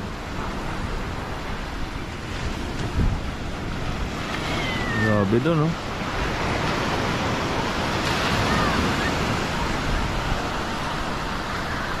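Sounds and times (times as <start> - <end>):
ocean surf breaking on shore: 0.0 - 12.0.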